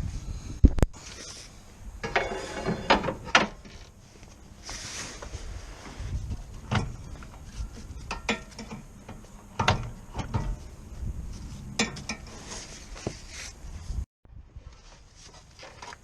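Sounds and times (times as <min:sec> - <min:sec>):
hand tools and metal parts clunking: 0:02.0 - 0:04.5, 0:05.1 - 0:13.3.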